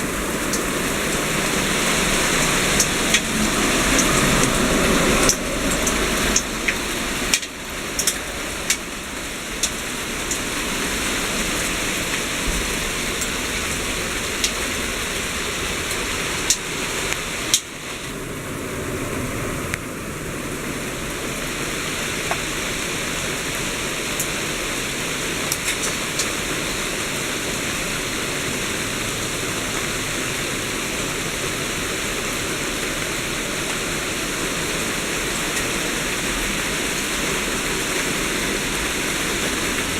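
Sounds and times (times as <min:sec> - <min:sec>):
hail pelting down: 0:00.0 - 0:18.3
hailstones clicking: 0:02.3 - 0:09.0.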